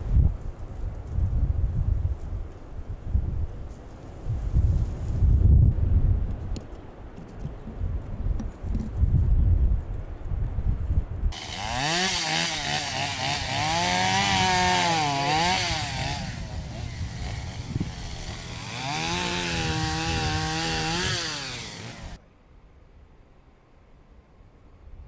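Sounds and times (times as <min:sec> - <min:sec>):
chainsaw revving while cutting: 0:11.4 - 0:22.2.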